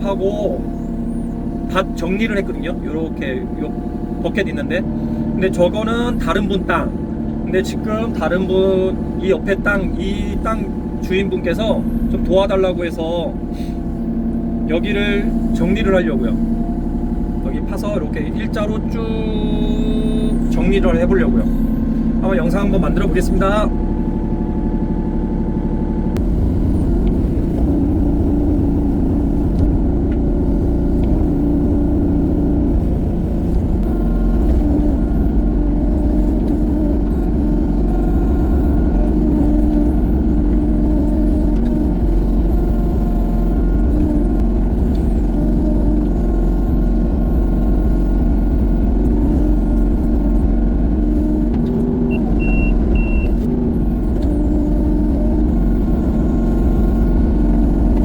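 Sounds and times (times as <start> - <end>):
excavator diesel engine running: 0.0 - 58.0
short high beep: 52.1 - 53.4.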